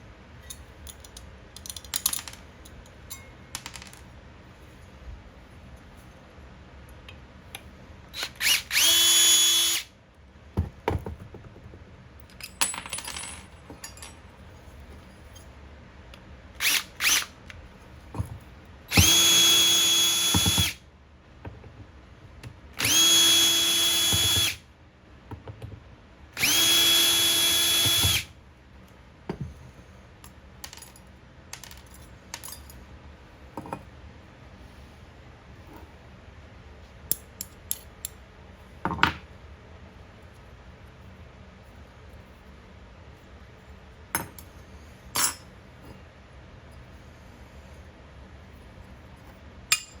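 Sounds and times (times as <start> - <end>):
small parts clicking and clinking: 0.4 - 4.1
electric drill whining: 8.2 - 9.9, 16.6 - 17.3, 18.9 - 20.8, 22.8 - 24.6, 26.4 - 28.3.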